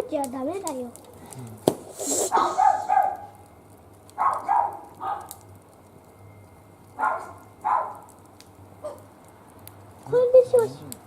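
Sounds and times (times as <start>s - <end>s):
small dog yapping: 2.3s - 3.4s, 4.2s - 5.4s, 7.0s - 8.1s.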